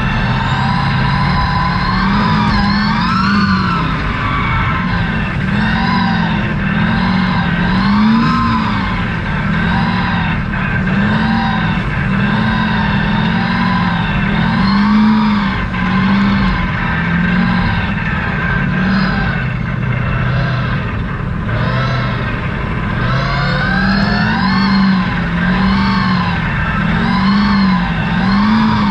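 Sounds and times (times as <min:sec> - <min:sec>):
truck engine revving: 0:00.0 - 0:28.9.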